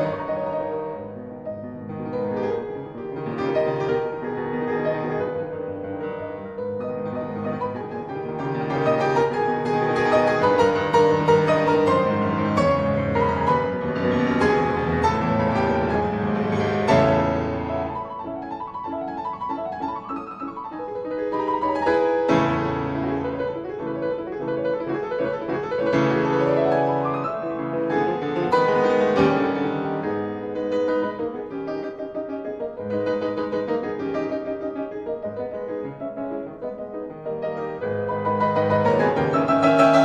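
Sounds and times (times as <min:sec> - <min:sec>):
gentle solo piano music: 0:00.0 - 0:40.0.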